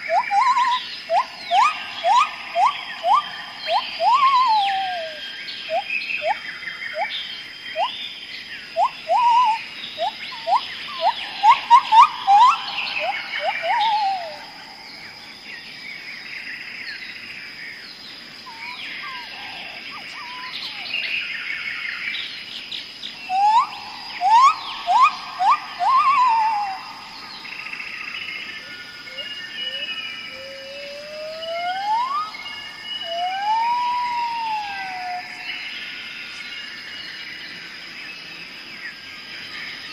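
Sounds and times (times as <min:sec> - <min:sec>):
bird whistling trills: 0:00.0 - 0:08.0, 0:08.8 - 0:14.8, 0:18.5 - 0:21.1, 0:23.2 - 0:35.7
birds twittering: 0:00.0 - 0:39.9
high insect whine: 0:00.0 - 0:39.9.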